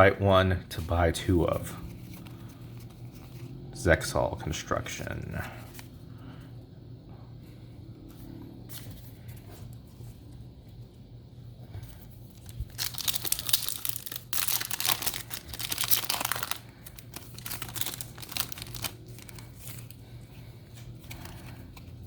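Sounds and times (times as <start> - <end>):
foil wrapper tearing and crinkling: 12.3 - 20.0.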